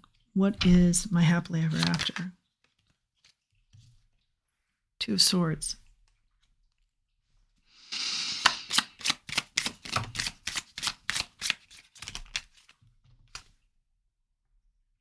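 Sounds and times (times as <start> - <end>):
card snaps while shuffling: 1.7 - 2.3, 8.4 - 12.7
cards rustling: 1.7 - 3.4, 8.4 - 13.5.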